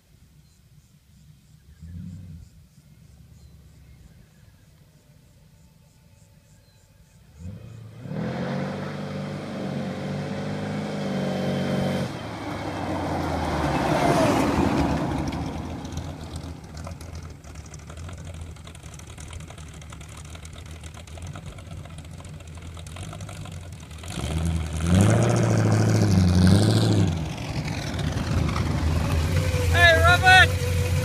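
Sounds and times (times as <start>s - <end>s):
car engine revving: 7.3s - 31.0s.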